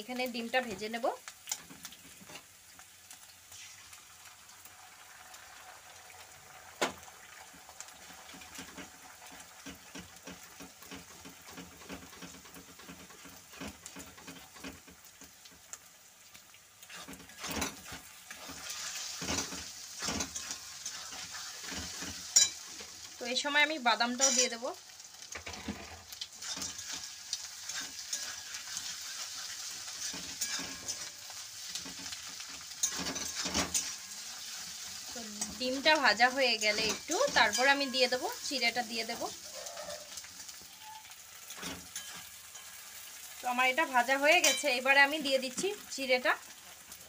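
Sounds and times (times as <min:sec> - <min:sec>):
egg and vegetables sizzling in oil: 0:00.0 - 0:47.0
spatula scraping and tapping pan: 0:08.0 - 0:15.8, 0:16.8 - 0:23.0, 0:24.2 - 0:24.6, 0:25.4 - 0:39.3, 0:41.5 - 0:43.1, 0:44.3 - 0:44.8.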